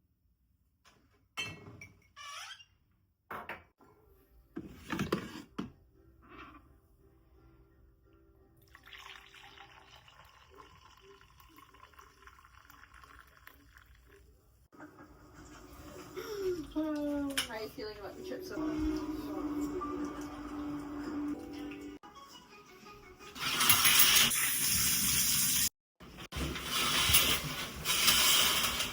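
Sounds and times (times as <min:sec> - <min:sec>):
household knocks and clatters: 0:04.6 - 0:05.8, 0:26.2 - 0:28.9
tap water running: 0:08.6 - 0:14.2, 0:23.4 - 0:25.7.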